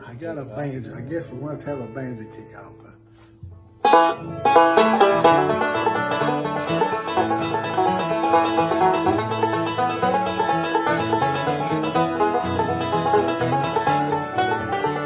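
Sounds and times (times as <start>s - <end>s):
banjo picking fast rolls: 3.8s - 15.0s
guitar bass notes: 3.8s - 15.0s.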